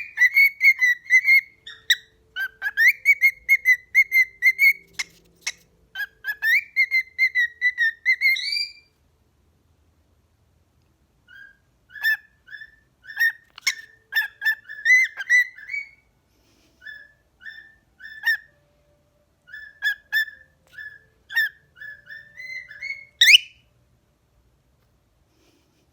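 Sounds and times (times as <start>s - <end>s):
cockatiel whistling: 0.0s - 8.9s, 11.3s - 16.1s, 16.8s - 18.7s, 19.4s - 23.7s.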